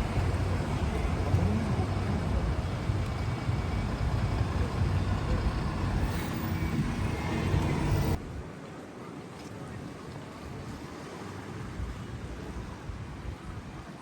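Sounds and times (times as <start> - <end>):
motor vehicle running: 0.0 - 8.2.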